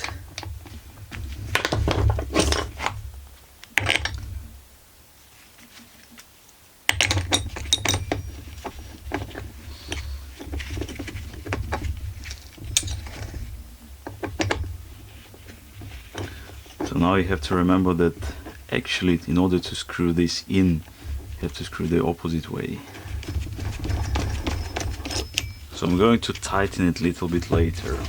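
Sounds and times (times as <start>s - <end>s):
metal parts and tools clinking: 6.9s - 13.5s, 22.9s - 28.0s.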